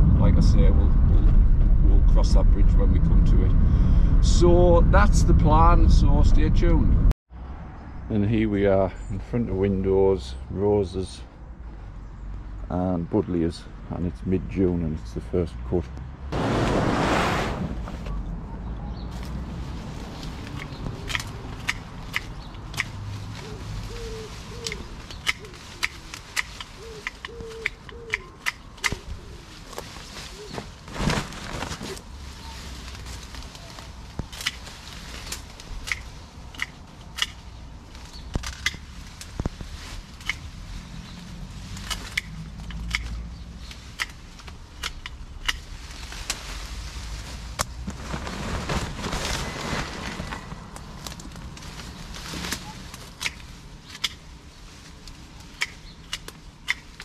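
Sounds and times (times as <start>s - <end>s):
low steady rumble: 0.0s - 20.5s
rustling foliage: 16.1s - 57.0s
pruners snipping stems: 20.4s - 29.1s, 33.0s - 37.4s, 38.1s - 40.5s, 41.7s - 46.4s, 55.0s - 57.0s
pigeon cooing: 23.4s - 26.1s, 26.8s - 29.5s.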